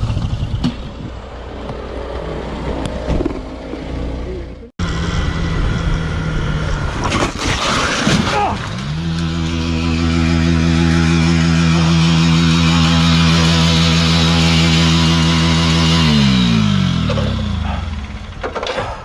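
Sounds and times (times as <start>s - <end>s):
motorcycle engine running: 0.0s - 7.0s, 8.7s - 19.0s
engine revving higher: 8.6s - 18.5s.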